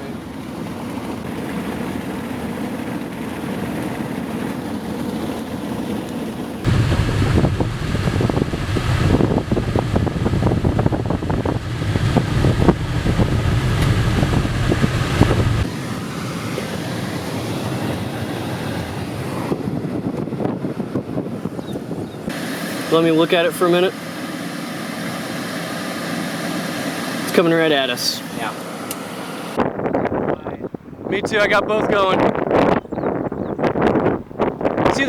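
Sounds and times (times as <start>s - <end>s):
wind and road noise: 0.0s - 35.0s
wind buffeting on microphone: 6.6s - 22.5s, 29.5s - 35.0s.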